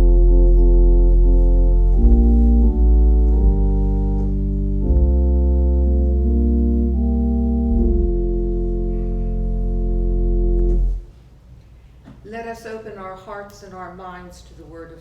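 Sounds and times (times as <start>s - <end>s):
organ playing sustained chords: 0.0s - 11.1s.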